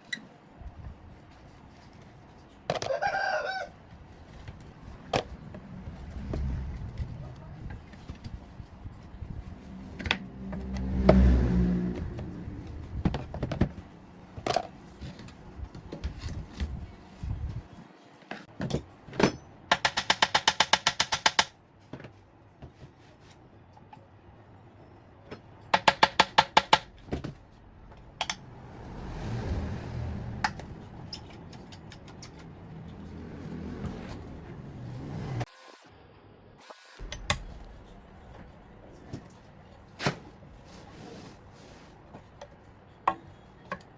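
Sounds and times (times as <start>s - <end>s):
low rumbling: 5.5s - 14.3s, 26.9s - 31.3s, 37.0s - 39.8s.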